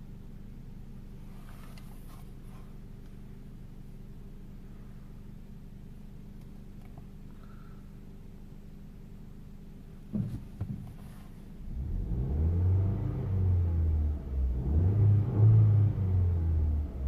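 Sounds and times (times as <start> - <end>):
car engine revving: 11.6 - 17.0.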